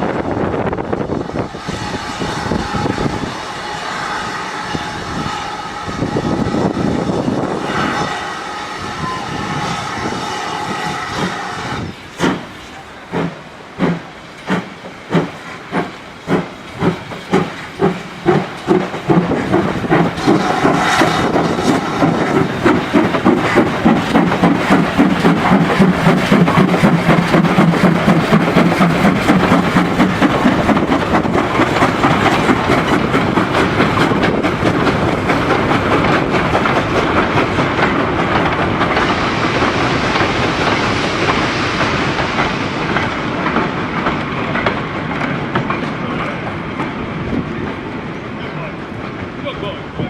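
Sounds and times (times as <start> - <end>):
steam locomotive chuffing: 0.9 - 50.0
train wheels clacking over rail joints: 9.4 - 49.4.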